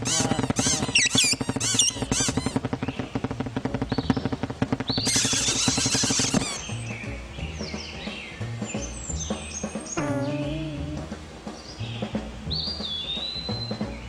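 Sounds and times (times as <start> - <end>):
bright hiss with high cry: 0.0 - 3.2, 5.0 - 6.7
cartoon birds chirping and squeaking: 0.0 - 7.0, 10.0 - 11.0
steady rhythmic pulse: 0.0 - 7.3.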